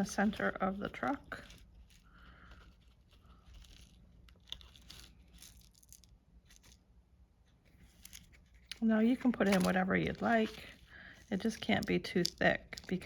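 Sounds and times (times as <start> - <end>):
faint rustling: 0.0 - 13.0
light clicks of small bits: 11.4 - 13.0.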